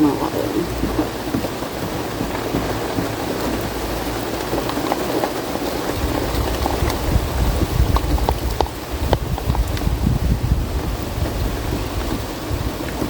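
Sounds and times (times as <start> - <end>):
drops ticking: 0.0 - 9.9
rain falling: 0.0 - 13.0.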